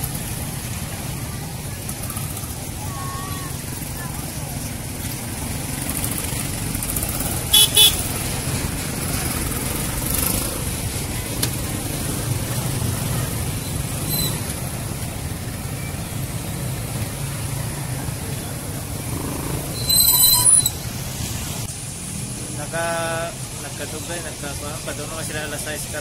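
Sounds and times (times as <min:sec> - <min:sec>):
road traffic rumble: 0:00.0 - 0:26.0
car horn beep: 0:07.5 - 0:08.1.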